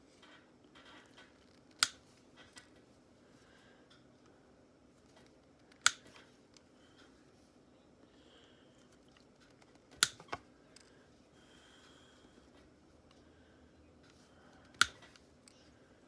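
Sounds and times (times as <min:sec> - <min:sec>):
folding knife clicking: 0:01.8 - 0:02.0, 0:05.8 - 0:06.1.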